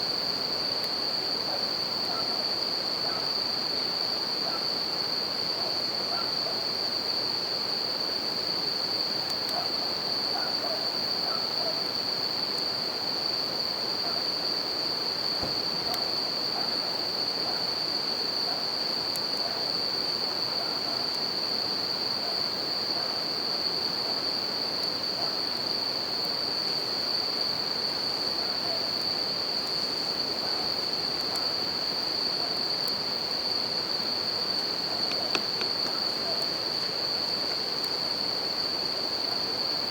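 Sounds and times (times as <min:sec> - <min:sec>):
crickets trilling: 0:00.0 - 0:39.9
campfire crackles: 0:15.4 - 0:17.1, 0:32.8 - 0:38.1.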